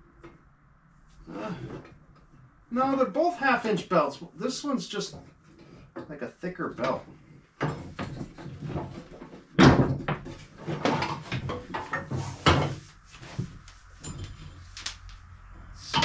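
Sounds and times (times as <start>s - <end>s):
handling knocks and thuds: 6.8s - 12.8s.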